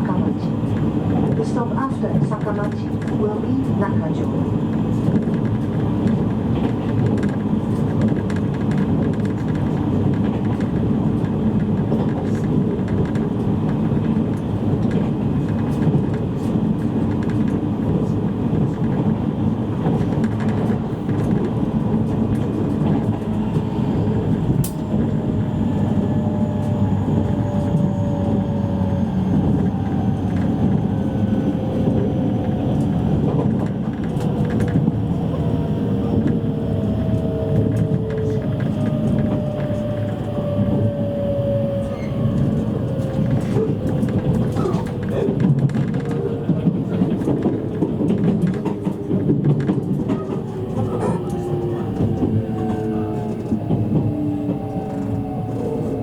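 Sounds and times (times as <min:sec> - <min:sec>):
wheel and rail rumble: 0:00.0 - 0:56.0
train motor whine: 0:33.9 - 0:56.0.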